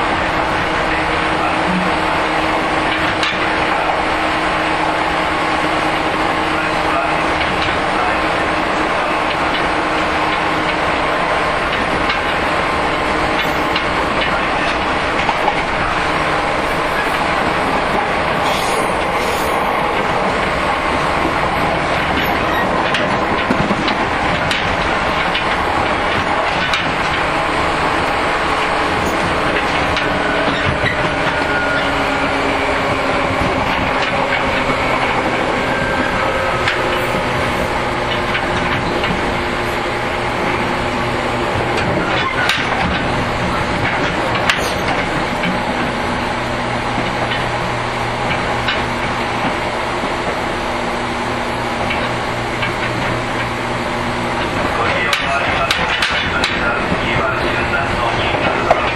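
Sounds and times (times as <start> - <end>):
rail joint clacks: 0.0 - 58.9
train motor and gear hum: 0.0 - 58.9
train wheel rumble: 0.0 - 58.9.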